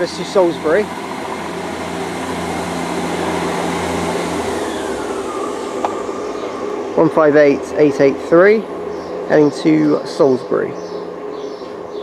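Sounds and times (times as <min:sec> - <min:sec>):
diesel train engine drone: 0:00.0 - 0:12.0
train whine falling in pitch: 0:00.6 - 0:07.8.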